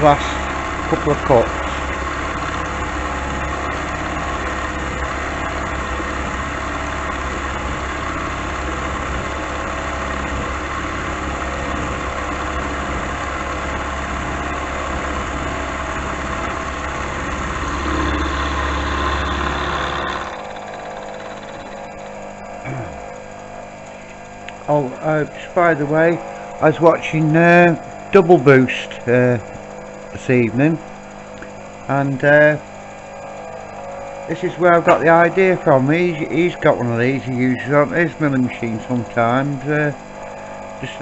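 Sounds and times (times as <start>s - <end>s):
milling machine cutting steel: 0.0s - 22.5s, 34.4s - 41.0s.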